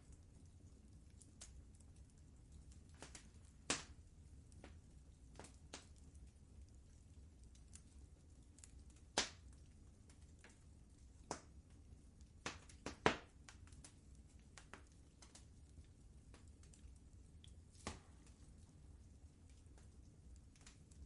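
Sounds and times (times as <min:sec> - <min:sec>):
faint low rumble: 0:00.0 - 0:21.0
wood fire crackling: 0:00.0 - 0:21.0.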